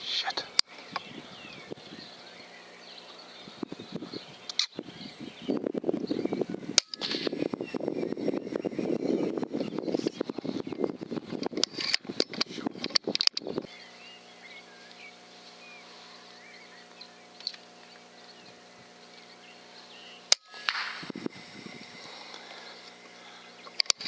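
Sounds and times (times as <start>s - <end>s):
air rifle shot crack: 20.3s - 21.1s.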